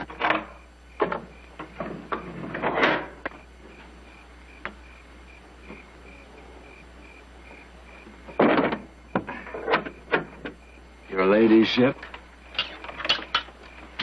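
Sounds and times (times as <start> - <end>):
sharp knocks and clatters: 0.0 - 3.4, 8.3 - 10.6, 12.0 - 14.0
steady low background hum: 0.0 - 14.0
faint pulsing high tone: 3.0 - 12.6.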